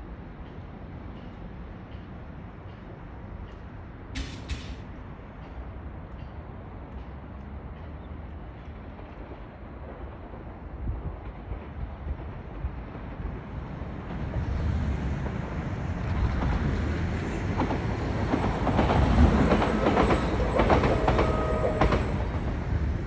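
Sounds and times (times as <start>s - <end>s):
train passing: 0.0s - 23.0s
wheels clacking over rail joints: 0.4s - 9.5s, 15.2s - 23.0s.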